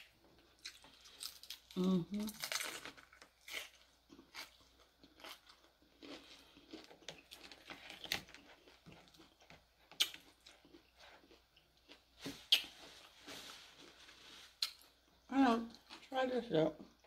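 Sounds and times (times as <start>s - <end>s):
chewing and crunching: 0.0s - 13.1s.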